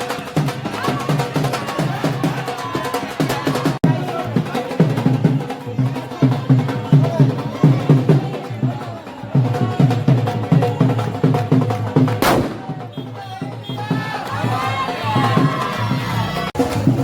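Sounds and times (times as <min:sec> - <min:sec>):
drums beating steady rhythm: 0:00.0 - 0:17.0
loud burst: 0:12.2 - 0:12.9.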